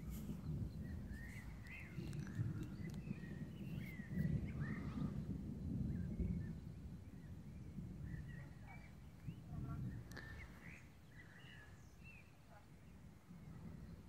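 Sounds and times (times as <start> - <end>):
birds chirping and calling: 0.3 - 5.2, 8.1 - 13.0.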